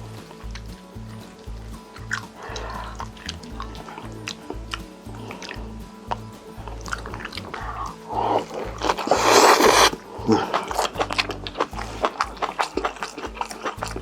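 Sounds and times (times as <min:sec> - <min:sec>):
wet chewing and mouth smacking: 0:00.0 - 0:14.0
loud hissy slurp: 0:02.1 - 0:04.4, 0:06.6 - 0:13.9.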